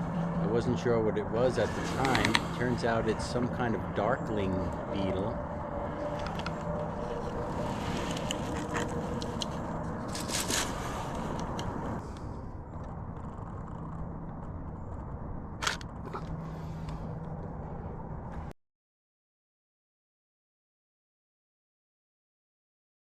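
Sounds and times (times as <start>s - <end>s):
low rumble: 0.0s - 18.5s
short scrapes and crackles: 1.6s - 3.0s, 6.0s - 12.3s.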